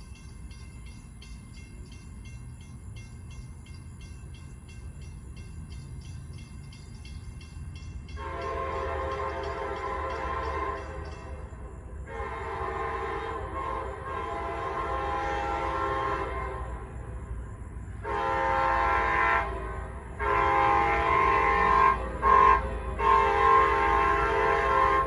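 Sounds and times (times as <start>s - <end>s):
locomotive air horn blasts: 8.2s - 11.4s, 12.1s - 17.0s, 18.0s - 25.0s.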